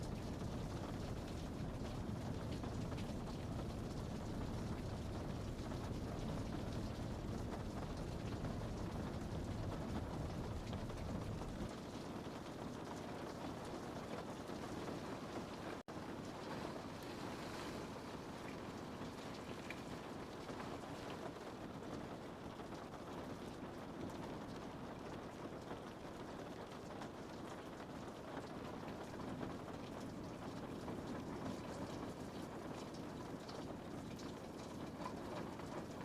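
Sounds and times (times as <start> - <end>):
raindrops ticking on glass: 0.0 - 16.7, 18.2 - 36.0
rain hissing: 0.0 - 25.7.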